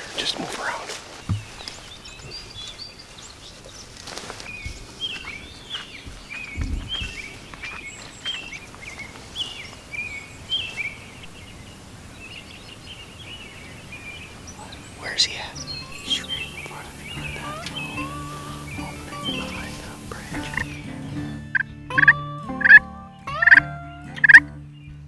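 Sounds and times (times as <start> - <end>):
outdoor background noise: 0.0 - 25.0
songbird chirping: 0.0 - 25.0
dull low thump: 1.3 - 1.6, 6.1 - 7.3.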